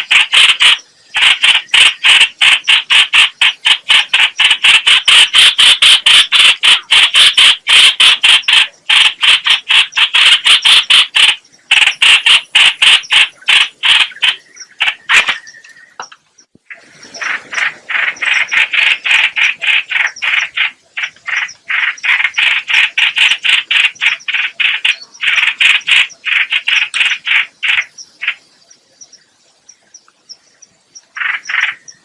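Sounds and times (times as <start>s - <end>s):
bird calling with harsh chattering notes: 0.0s - 32.0s.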